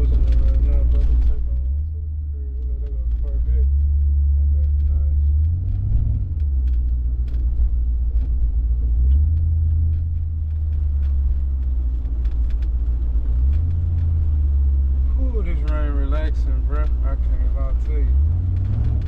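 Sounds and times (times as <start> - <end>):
car engine rumbling: 0.0 - 19.0.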